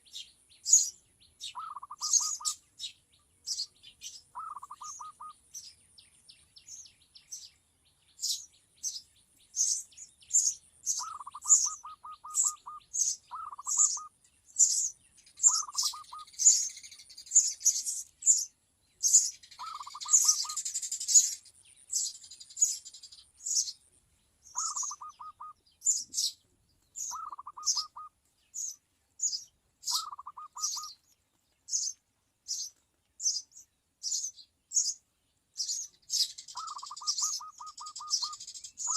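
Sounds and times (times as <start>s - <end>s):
birds chirping: 0.0s - 38.9s
lower fast-pulsed bird trill: 0.7s - 2.6s, 3.5s - 5.7s, 9.6s - 23.8s, 24.5s - 26.4s, 27.0s - 31.0s, 35.6s - 38.9s.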